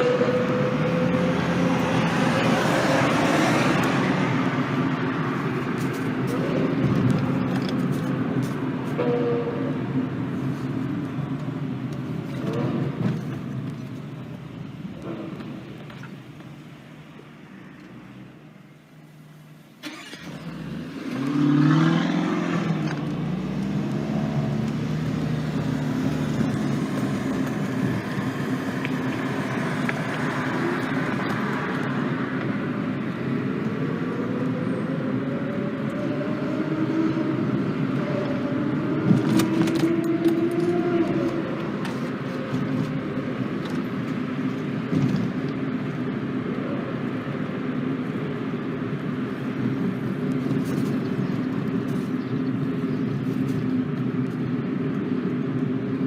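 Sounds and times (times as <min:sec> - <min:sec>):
car engine revving and accelerating: 0:00.0 - 0:08.3, 0:19.8 - 0:47.2
car engines running: 0:00.0 - 0:56.0.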